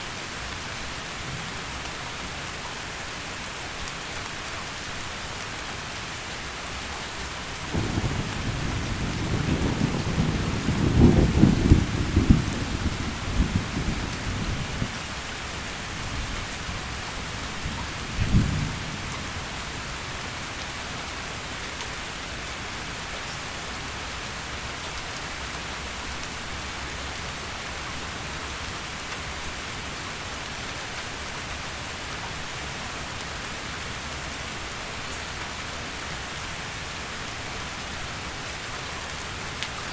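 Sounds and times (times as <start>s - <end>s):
heavy rain: 0.0s - 39.9s
thunder rumbling: 7.7s - 15.0s.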